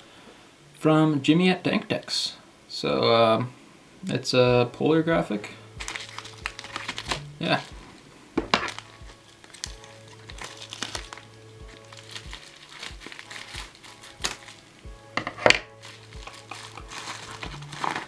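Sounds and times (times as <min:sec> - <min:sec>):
background music with low beat: 0:04.3 - 0:18.0
packaging crinkling: 0:05.4 - 0:18.0.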